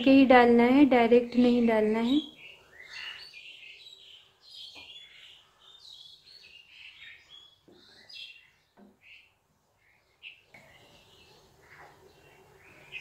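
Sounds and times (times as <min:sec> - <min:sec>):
faint bird chirping: 0:00.8 - 0:13.0.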